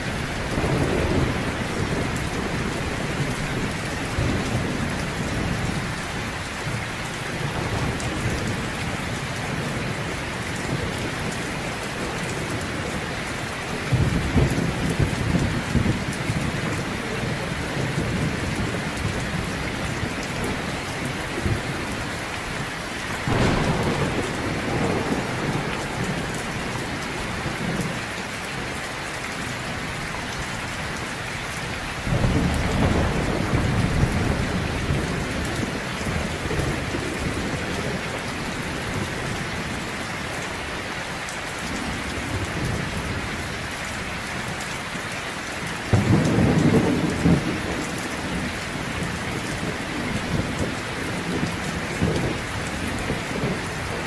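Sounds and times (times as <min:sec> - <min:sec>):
rolling thunder: 0:00.0 - 0:28.8, 0:32.0 - 0:39.8, 0:45.8 - 0:54.0
heavy rain: 0:00.0 - 0:54.0.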